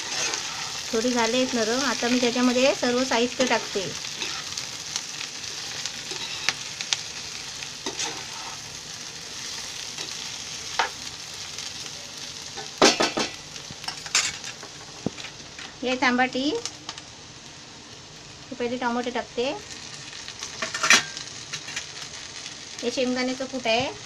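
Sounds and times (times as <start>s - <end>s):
spatula scraping pan: 0.0s - 1.7s, 3.3s - 4.7s, 5.5s - 6.6s, 7.8s - 8.7s
vegetables sizzling in oil: 0.0s - 24.0s.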